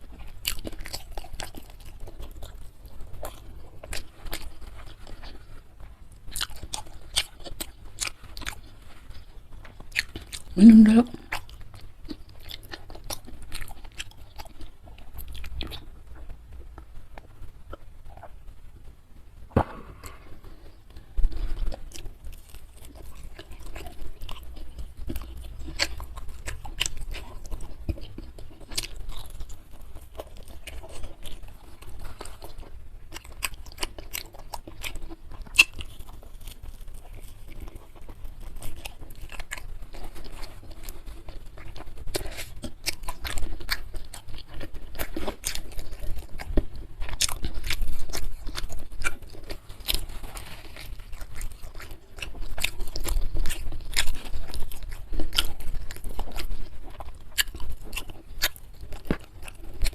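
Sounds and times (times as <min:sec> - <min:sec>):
chewing and crunching food: 0:00.0 - 0:59.9.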